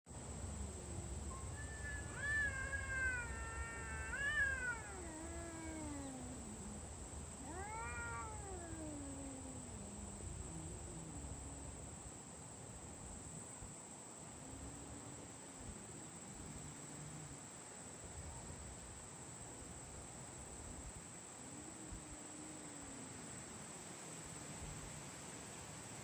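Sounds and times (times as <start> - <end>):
cat meowing: 0.9 - 6.8, 7.4 - 10.0.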